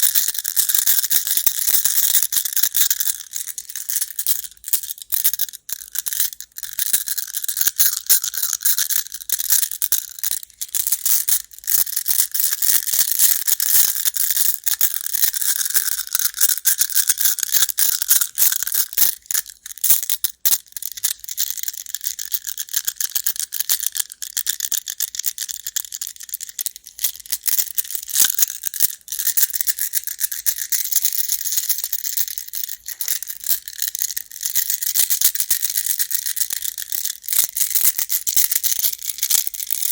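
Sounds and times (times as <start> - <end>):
game stones clattering together: 29.3 - 34.1.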